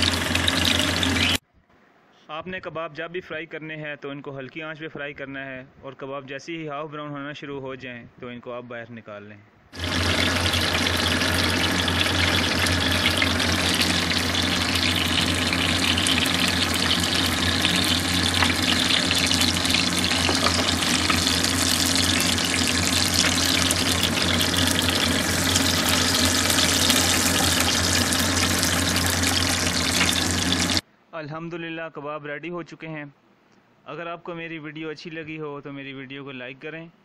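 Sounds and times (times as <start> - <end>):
kebabs sizzling in oil: 0.0 - 1.4, 9.8 - 30.8
low hum: 0.0 - 1.4, 9.8 - 30.8.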